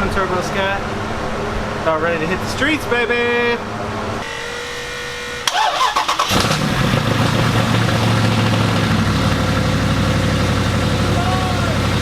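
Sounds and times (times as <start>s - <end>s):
car engine idling: 5.1s - 12.0s.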